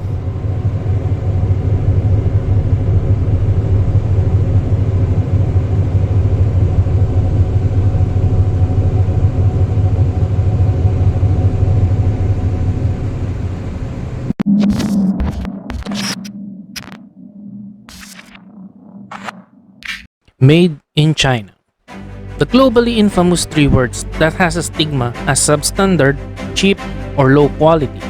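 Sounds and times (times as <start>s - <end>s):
faint even hum: 0.0s - 19.4s
low mechanical rumble: 0.0s - 19.9s.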